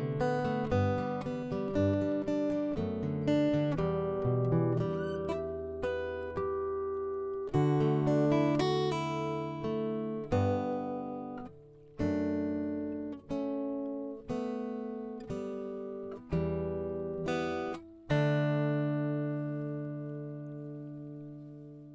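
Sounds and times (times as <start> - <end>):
acoustic guitar playing: 0.0 - 21.9.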